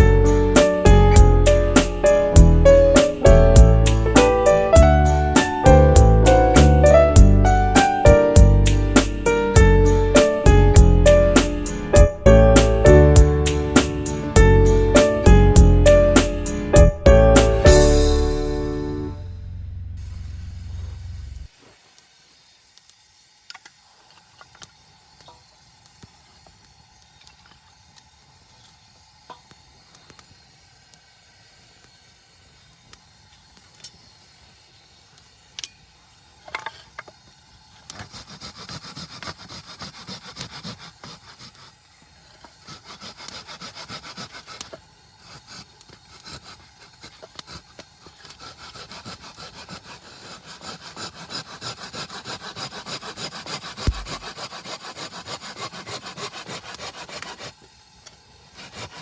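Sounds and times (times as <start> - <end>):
hand saw cutting wood: 0.2 - 7.1, 7.8 - 12.0, 12.6 - 16.8, 37.8 - 57.6, 58.4 - 59.0.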